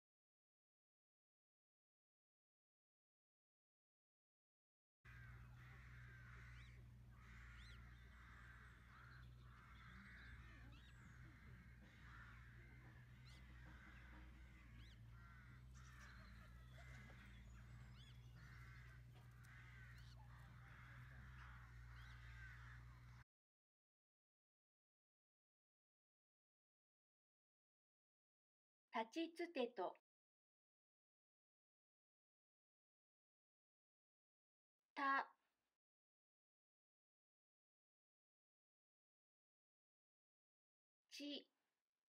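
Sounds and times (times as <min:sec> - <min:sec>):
faint bird calls: 0:05.1 - 0:23.2
steady low hum: 0:05.1 - 0:23.2.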